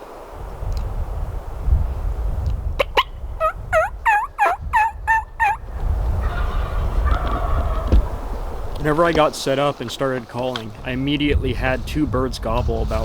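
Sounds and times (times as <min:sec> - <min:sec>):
wind rumbling on microphone: 0:00.0 - 0:13.0
turkey call yelps: 0:02.8 - 0:05.6, 0:06.2 - 0:07.9.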